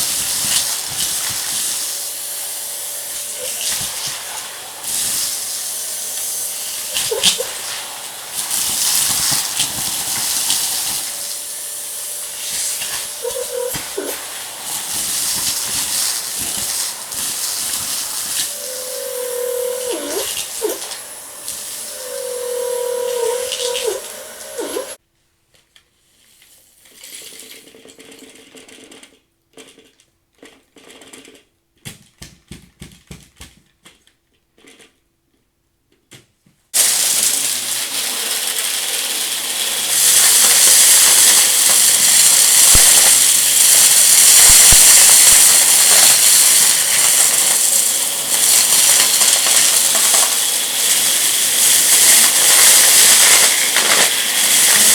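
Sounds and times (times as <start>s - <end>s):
debris sucked up by vacuum: 0.0s - 25.0s, 36.8s - 54.9s
vacuum cleaner running: 0.0s - 25.0s, 36.8s - 54.9s.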